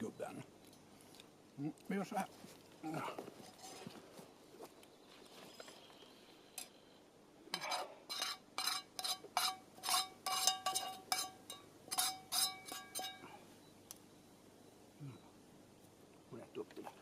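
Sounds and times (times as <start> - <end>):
metal utensil scraping metal pan: 7.5 - 13.2.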